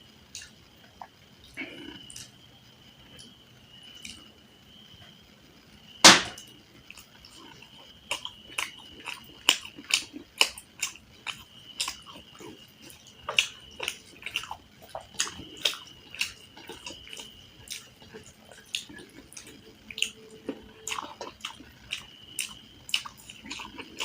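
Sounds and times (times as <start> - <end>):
faint high whine: 0.0 - 24.0
chewing with wet mouth clicks: 0.3 - 2.4, 4.0 - 4.3, 6.4 - 24.0
sharp loud crunch: 6.0 - 6.4.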